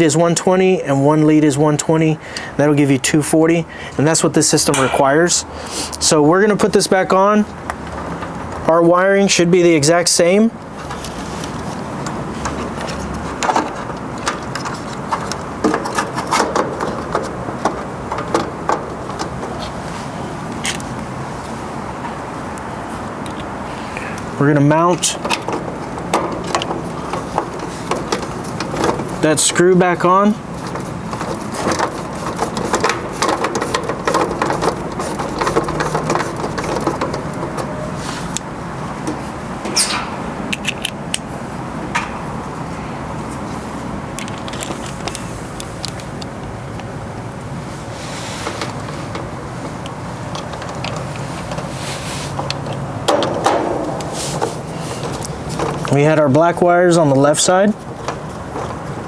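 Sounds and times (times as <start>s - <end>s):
steady background noise: 0.0s - 59.0s
clicks and knocks of handling: 10.8s - 19.8s, 24.9s - 29.3s, 30.5s - 41.3s, 44.2s - 46.9s, 48.4s - 56.0s, 57.8s - 59.0s
metallic clicking and scraping: 30.5s - 38.4s, 48.4s - 56.0s.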